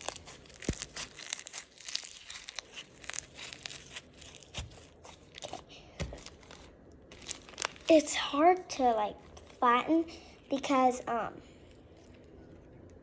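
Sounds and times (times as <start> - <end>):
slime crackling and popping: 0.0 - 9.6.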